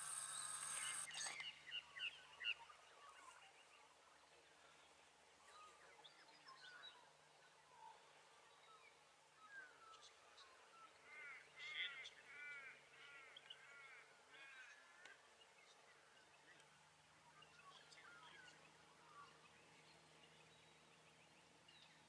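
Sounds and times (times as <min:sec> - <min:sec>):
bird chirping: 0:00.0 - 0:02.6.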